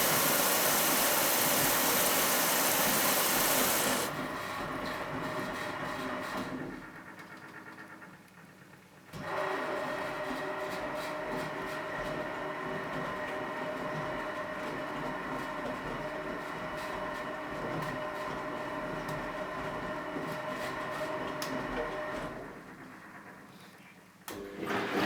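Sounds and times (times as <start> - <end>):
washing machine motor whining: 0.0 - 4.3.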